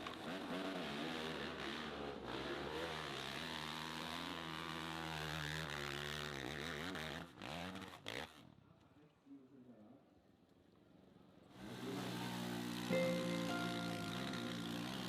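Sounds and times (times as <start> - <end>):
motorcycle engine revving: 0.0 - 8.3, 11.6 - 12.9.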